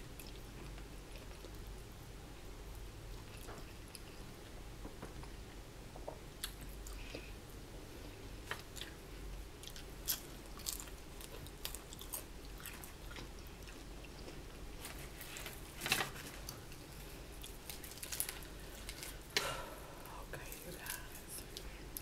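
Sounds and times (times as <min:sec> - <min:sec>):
person chewing crispy chicken: 0:09.6 - 0:15.3.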